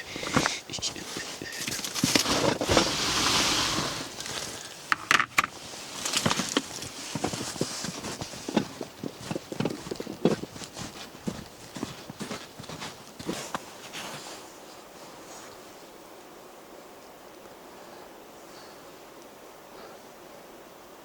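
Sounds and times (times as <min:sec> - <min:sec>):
footsteps crunching in snow: 0:00.0 - 0:04.9, 0:05.5 - 0:16.0.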